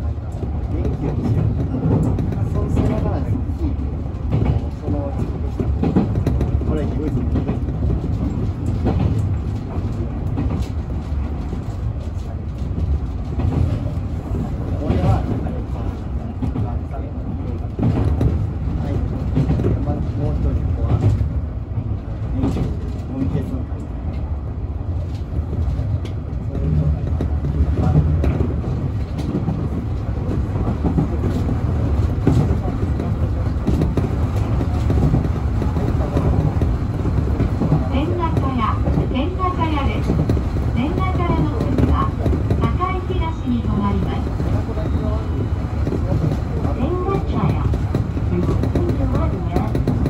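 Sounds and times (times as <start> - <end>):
electric train rumbling: 0.0 - 50.0
faint rail clicks: 25.0 - 50.0.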